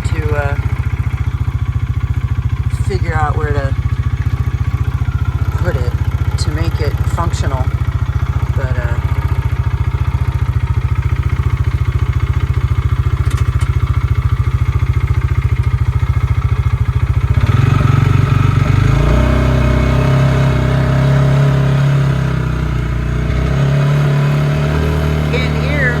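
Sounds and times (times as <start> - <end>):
utility vehicle engine running: 0.0 - 26.0.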